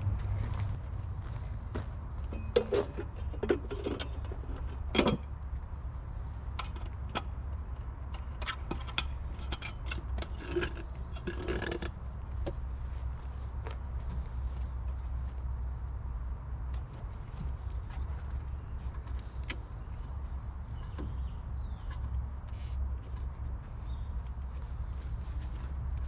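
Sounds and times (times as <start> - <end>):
metal clinking and scraping: 8.2 - 12.0.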